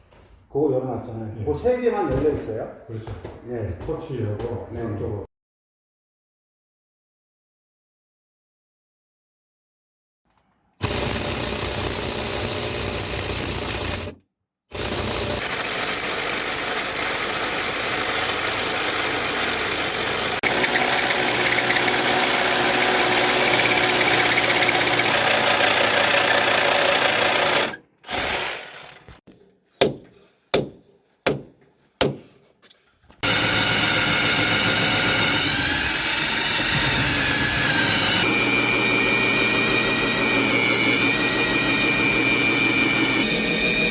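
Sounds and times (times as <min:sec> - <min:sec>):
machine motor running: 0:10.8 - 0:14.2, 0:14.8 - 0:29.1.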